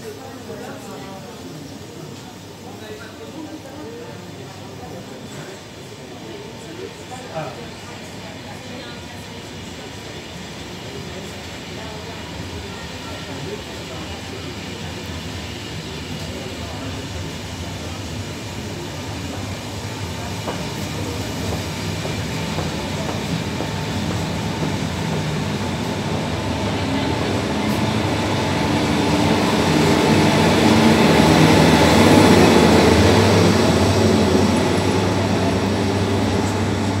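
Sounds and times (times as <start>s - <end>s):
electric locomotive hum: 3.8s - 37.0s
train carriages rumbling on rails: 18.2s - 37.0s.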